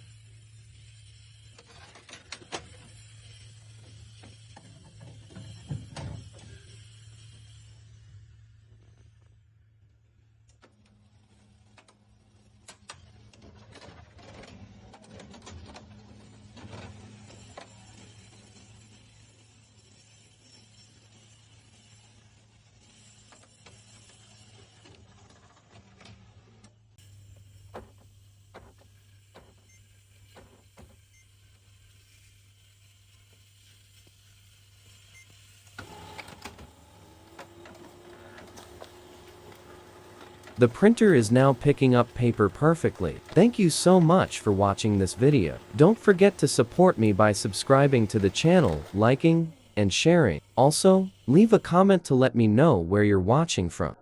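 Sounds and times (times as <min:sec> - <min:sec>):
printer paper feed clicks and rattles: 0:12.6 - 0:17.7, 0:27.6 - 0:31.0, 0:35.6 - 0:51.5
laser printer motor running: 0:27.0 - 0:51.8.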